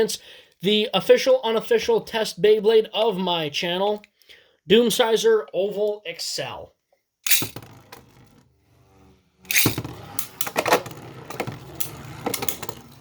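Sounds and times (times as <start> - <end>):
spinning tops clacking: 7.3 - 7.8, 9.5 - 10.4.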